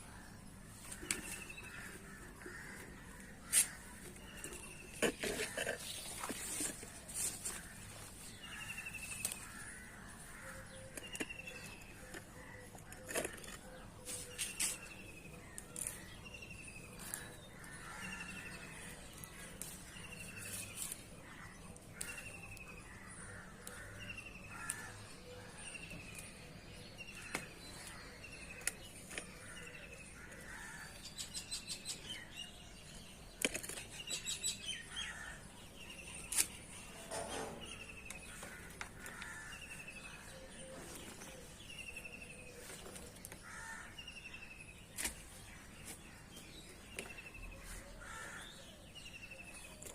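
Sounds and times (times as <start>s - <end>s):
birds chirping: 0.0s - 49.9s.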